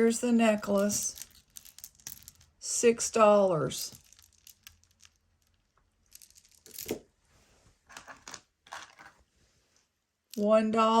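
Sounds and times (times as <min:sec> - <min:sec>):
jewelry rustling and clicking: 0:00.3 - 0:02.6, 0:03.8 - 0:07.2, 0:07.8 - 0:09.3.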